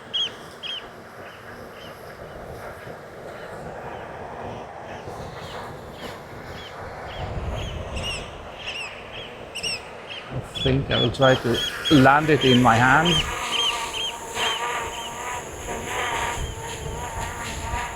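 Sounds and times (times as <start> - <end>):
oystercatchers piping calls: 0.0 - 0.9, 7.6 - 16.8
drone propeller hum: 0.0 - 17.9.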